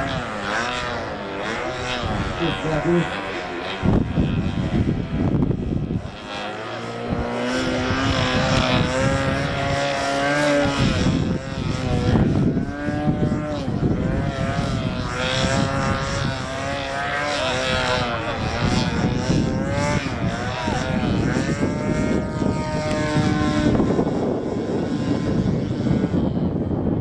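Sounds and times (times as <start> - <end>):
model airplane buzzing: 0.0 - 27.0.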